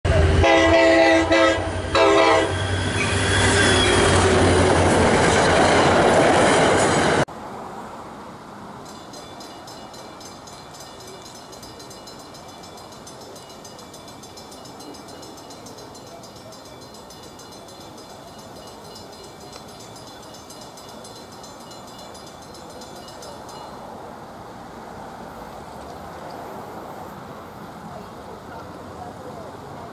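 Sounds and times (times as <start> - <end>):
passing train rush: 0.0 - 29.9
locomotive horn blasts: 0.1 - 4.4.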